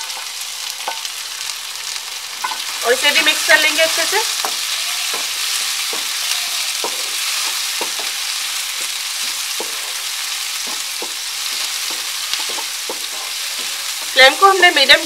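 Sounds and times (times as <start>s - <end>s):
onions sizzling in hot oil: 0.0s - 15.0s
spatula stirring and scraping: 3.7s - 14.4s.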